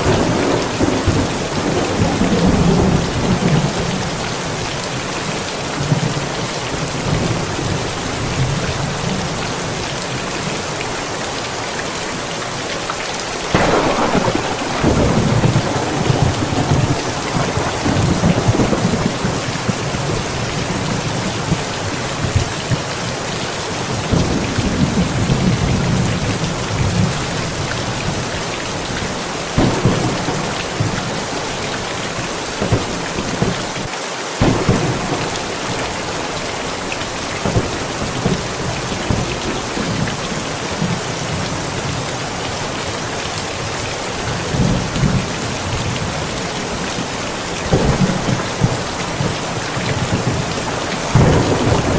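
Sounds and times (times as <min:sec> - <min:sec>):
thunder rumbling: 0:00.0 - 0:05.0, 0:13.5 - 0:23.1, 0:23.8 - 0:42.4, 0:44.2 - 0:51.9
heavy rain: 0:00.0 - 0:51.9.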